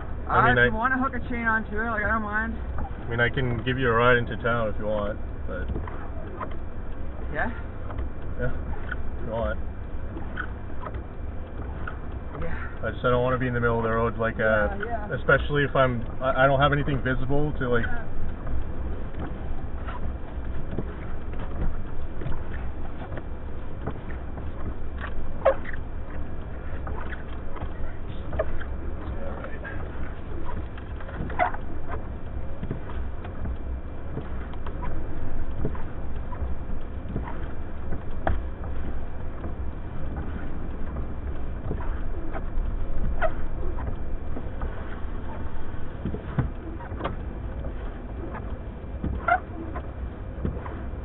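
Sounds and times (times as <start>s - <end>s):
faint short squeaks: 8.4s - 9.2s, 10.1s - 10.9s, 24.0s - 33.2s, 40.2s - 45.5s, 49.2s - 50.9s.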